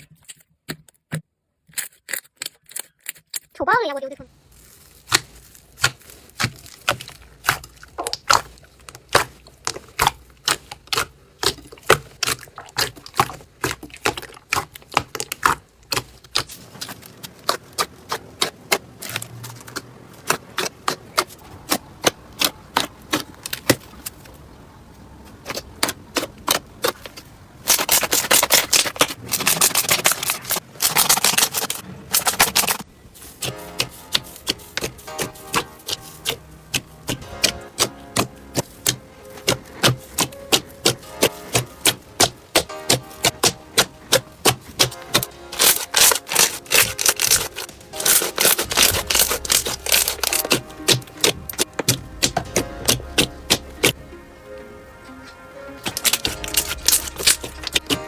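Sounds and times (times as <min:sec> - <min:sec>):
slime popping and clicking: 0:33.4 - 0:54.0, 0:55.8 - 0:58.0.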